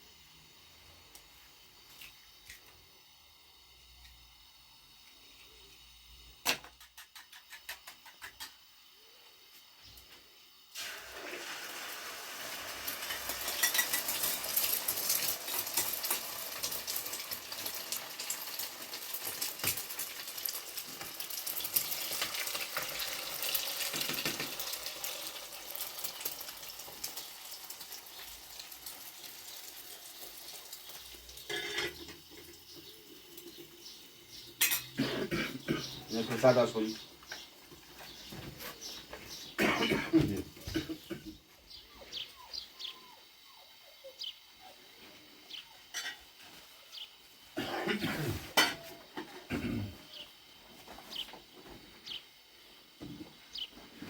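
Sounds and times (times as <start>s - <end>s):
utensils clinking: 13.0s - 16.3s, 31.4s - 32.6s, 34.5s - 36.5s
dishes clinking: 13.1s - 14.5s, 31.5s - 32.6s, 34.6s - 36.0s, 45.9s - 46.3s, 48.5s - 49.7s.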